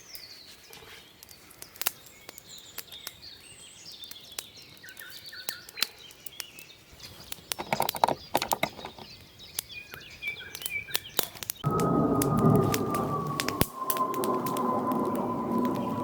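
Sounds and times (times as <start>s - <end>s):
small birds chirping: 0.0s - 11.7s.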